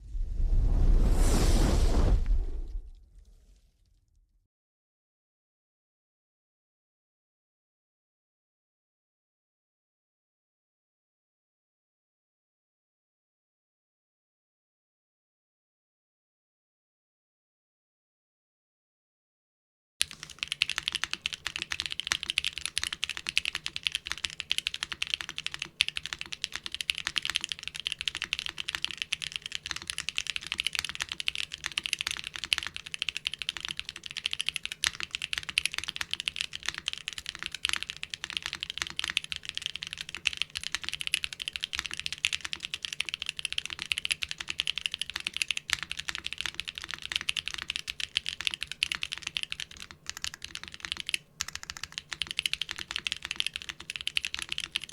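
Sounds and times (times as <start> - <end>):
fast mechanical keyboard typing: 20.0 - 54.9.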